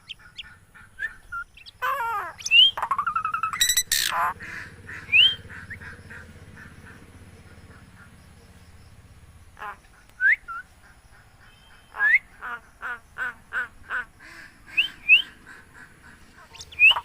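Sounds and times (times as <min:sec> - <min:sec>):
myna whistling calls: 0:00.0 - 0:04.4, 0:05.0 - 0:05.9, 0:16.4 - 0:17.0.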